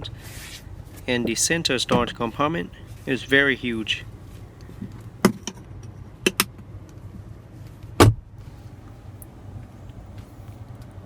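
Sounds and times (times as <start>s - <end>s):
low hum in car cab: 0.0s - 5.4s, 8.0s - 11.0s.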